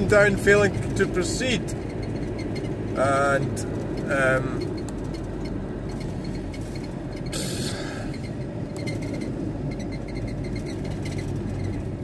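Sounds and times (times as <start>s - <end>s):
diesel engine rumble: 0.0s - 12.0s
road noise inside car: 0.0s - 12.0s.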